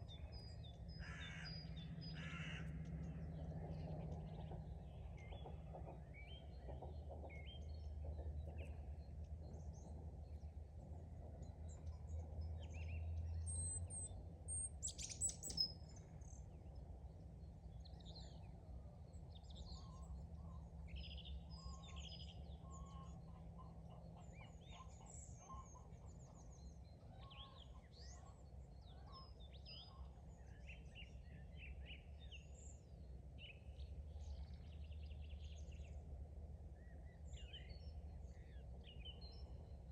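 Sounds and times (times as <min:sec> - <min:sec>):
low background rumble: 0:00.0 - 0:39.9
small birds chirping: 0:11.4 - 0:39.9.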